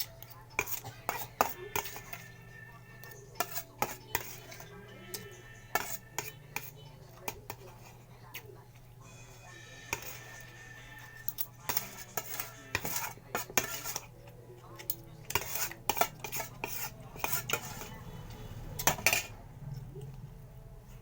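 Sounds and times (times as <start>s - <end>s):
cutlery scraping plate: 0.0s - 19.8s.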